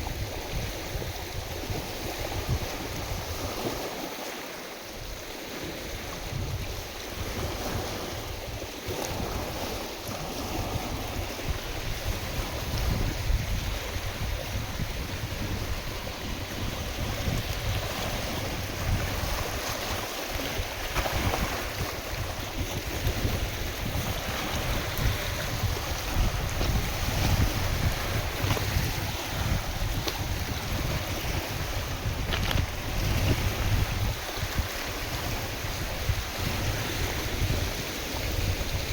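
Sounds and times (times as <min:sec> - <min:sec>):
wind buffeting microphone: 0:00.0 - 0:04.4, 0:05.0 - 0:38.9
lake waves splashing: 0:00.0 - 0:38.9.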